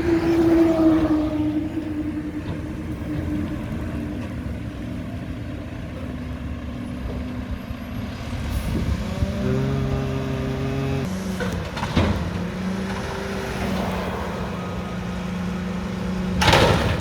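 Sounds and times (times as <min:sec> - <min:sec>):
truck engine running: 0:00.0 - 0:17.0
pitched drone: 0:08.3 - 0:16.9.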